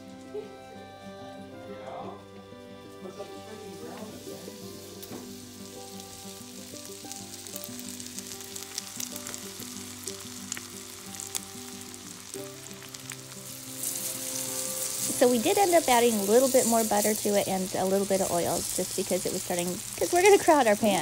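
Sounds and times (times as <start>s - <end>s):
mushrooms sizzling in butter: 0.0s - 21.0s
soft background music: 0.0s - 21.0s.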